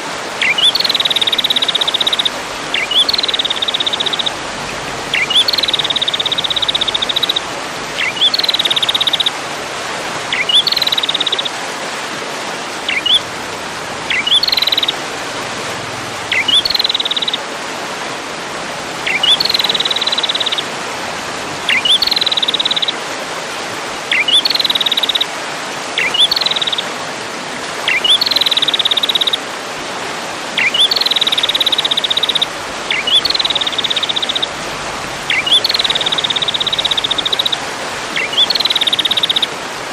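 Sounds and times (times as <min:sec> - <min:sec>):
steady hiss: 0:00.0 - 0:29.3
songbird song with buzzy trill: 0:00.4 - 0:09.4, 0:10.3 - 0:11.6, 0:12.8 - 0:13.3, 0:14.0 - 0:15.0, 0:16.3 - 0:17.4, 0:19.0 - 0:20.7, 0:21.6 - 0:23.0, 0:24.1 - 0:25.3, 0:26.0 - 0:26.9, 0:27.9 - 0:29.4, 0:30.6 - 0:39.6.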